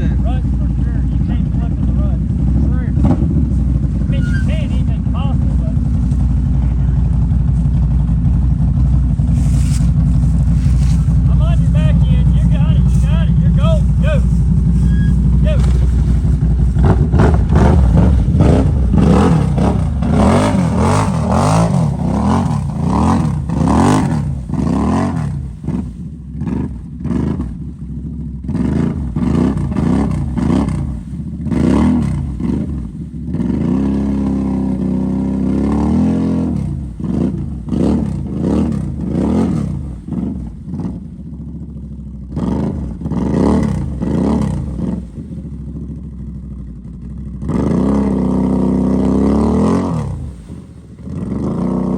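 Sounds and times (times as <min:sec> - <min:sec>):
vehicle engine revving in blips: 0:08.7 - 0:27.7, 0:28.4 - 0:41.1.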